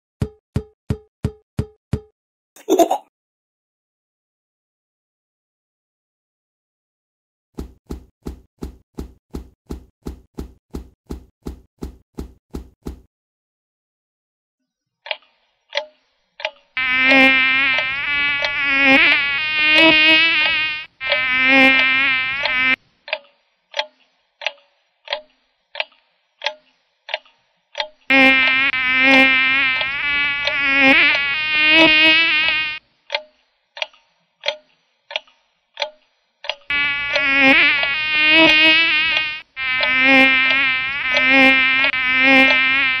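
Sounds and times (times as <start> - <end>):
cartoon insect buzzing: 16.8 - 22.8, 28.1 - 32.8, 36.7 - 43.0.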